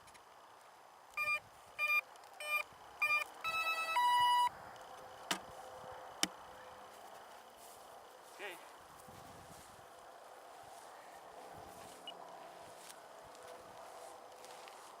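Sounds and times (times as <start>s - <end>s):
motor controller beeps: 1.2s - 4.5s.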